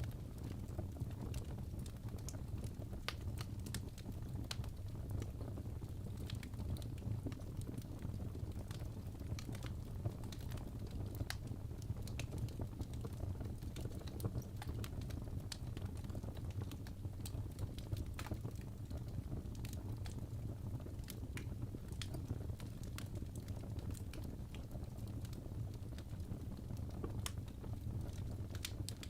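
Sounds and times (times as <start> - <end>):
fire burning: 0.0 - 29.0
logs crackling and popping: 0.0 - 29.0.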